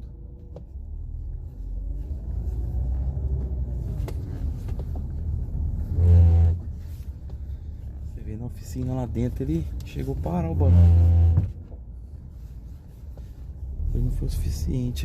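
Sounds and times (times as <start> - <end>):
engine and road rumble in cabin: 0.0 - 15.0
power steering wavering tones: 0.1 - 8.1, 9.1 - 11.8.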